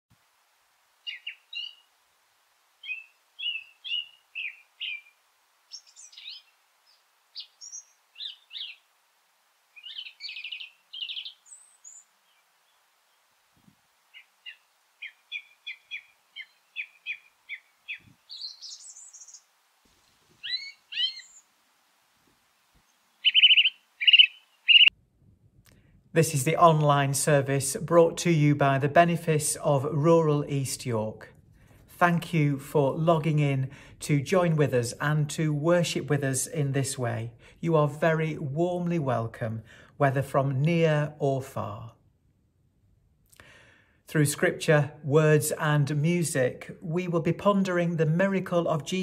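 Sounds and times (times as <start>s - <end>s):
songbirds chirping and twittering: 1.0s - 2.0s, 2.7s - 9.0s, 9.6s - 13.4s, 14.0s - 21.6s, 22.3s - 24.9s.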